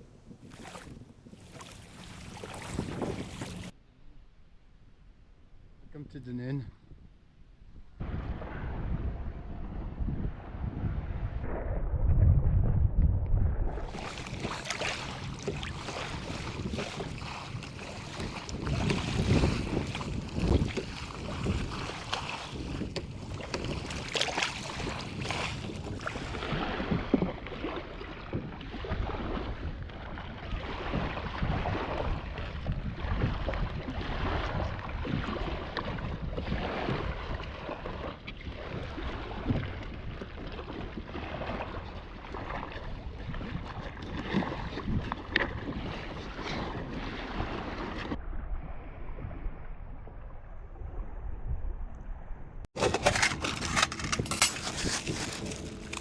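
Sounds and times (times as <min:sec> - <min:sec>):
wind buffeting microphone: 0:00.0 - 0:03.7, 0:06.7 - 0:56.0
water lapping against kayak: 0:00.0 - 0:03.8, 0:06.8 - 0:12.0, 0:13.2 - 0:51.4, 0:52.7 - 0:56.0
water splashes and knocks: 0:00.4 - 0:03.7, 0:13.7 - 0:48.2, 0:52.7 - 0:56.0.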